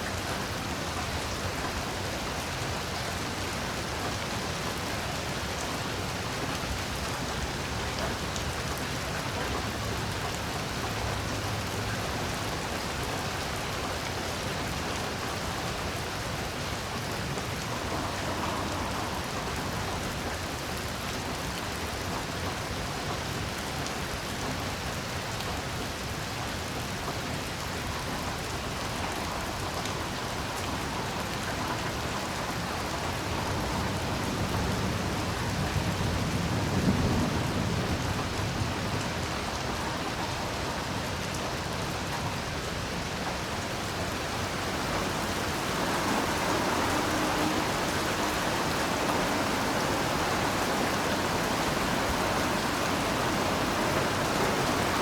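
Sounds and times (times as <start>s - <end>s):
heavy rain falling: 0.0s - 55.0s
thunder rumbling: 43.3s - 55.0s.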